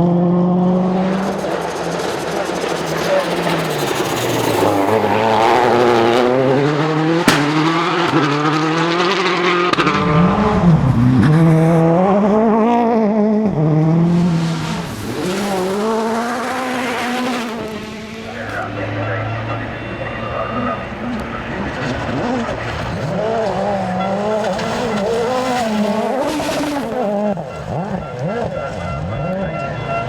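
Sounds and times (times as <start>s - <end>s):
rally car engine revving: 0.0s - 30.0s
sharp crack: 6.5s - 8.5s.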